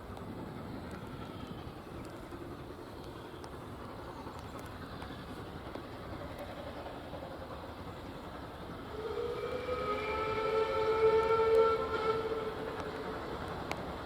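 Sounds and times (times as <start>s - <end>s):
steam locomotive whistle: 8.8s - 13.5s.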